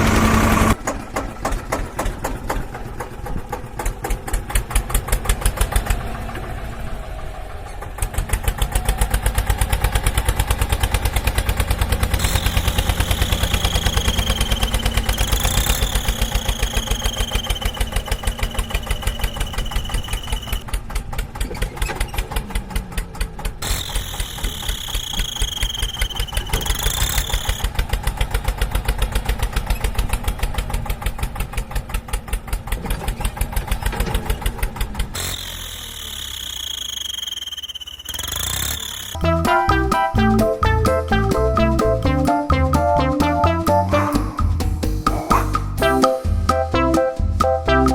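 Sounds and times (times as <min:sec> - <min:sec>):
engine putter: 0:00.0 - 0:42.5
high whistling tone bending down: 0:12.2 - 0:20.6, 0:24.0 - 0:27.6, 0:35.9 - 0:47.9.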